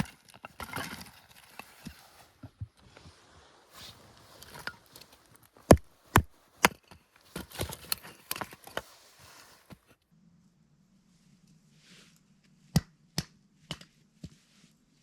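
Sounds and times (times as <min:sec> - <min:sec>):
firewood being chopped: 0:05.6 - 0:08.4, 0:12.7 - 0:13.9.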